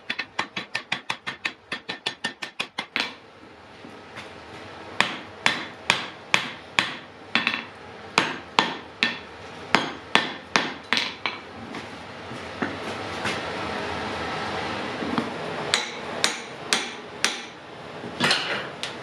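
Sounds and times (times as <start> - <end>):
hammer striking iron on anvil: 0.0 - 3.2, 5.0 - 11.4, 15.7 - 17.6.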